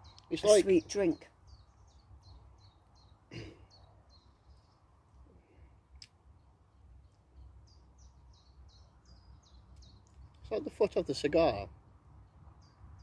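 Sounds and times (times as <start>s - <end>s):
small bird chirping: 0.0s - 5.0s, 6.0s - 10.8s.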